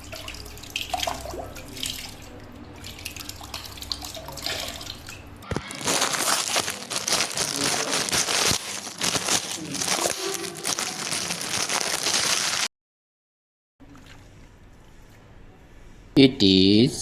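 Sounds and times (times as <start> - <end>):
plastic packaging crinkling: 5.4 - 12.7.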